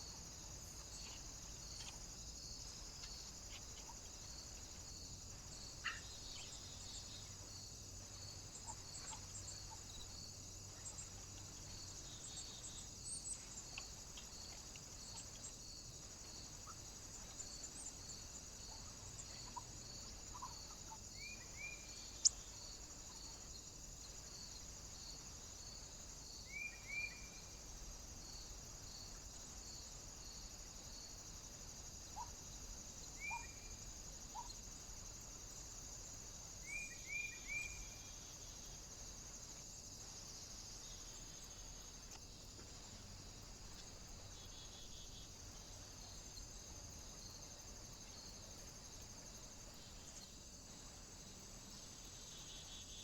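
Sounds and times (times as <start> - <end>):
steady high-pitched hiss: 0.0 - 53.0
small birds chirping: 0.1 - 24.4, 33.1 - 34.6.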